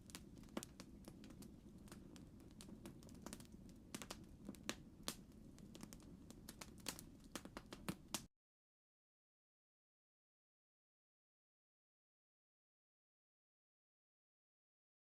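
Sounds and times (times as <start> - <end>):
campfire crackling: 0.0 - 8.3.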